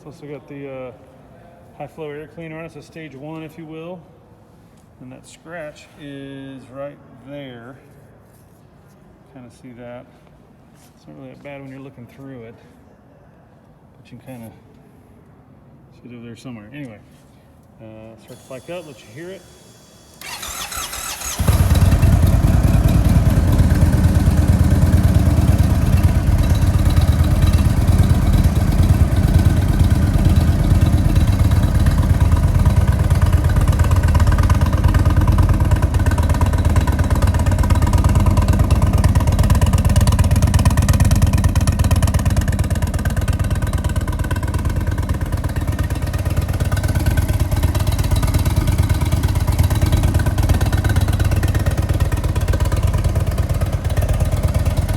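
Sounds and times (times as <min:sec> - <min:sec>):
starter motor whirring: 0:19.5 - 0:23.4
motorcycle engine idling: 0:20.2 - 0:54.9.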